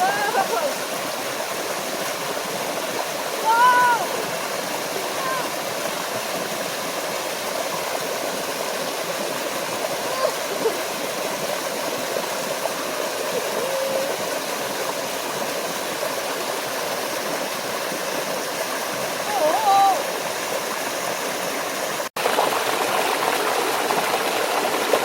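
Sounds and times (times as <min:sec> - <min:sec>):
water gurgling: 0:00.0 - 0:25.0
waterfall rushing into stream: 0:00.0 - 0:25.0.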